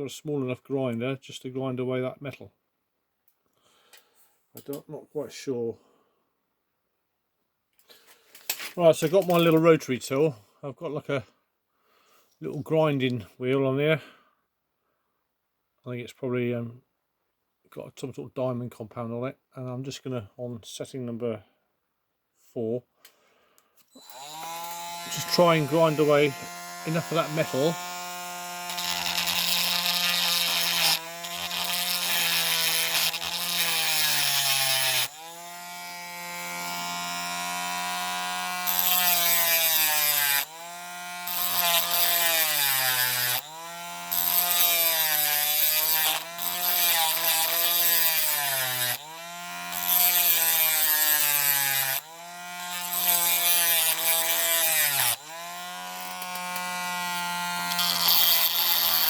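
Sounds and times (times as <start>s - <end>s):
rotary tool whining: 23.8s - 59.0s
grinding wheel rasping on metal: 24.0s - 59.0s.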